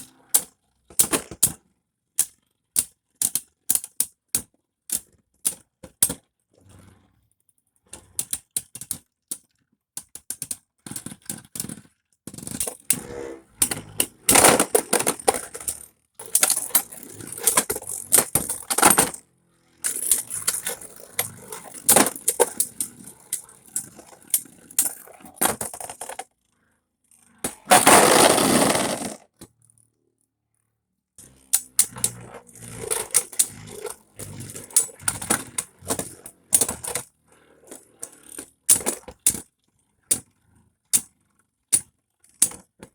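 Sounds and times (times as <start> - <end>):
spinning tops clashing and scraping: 27.5 - 29.2.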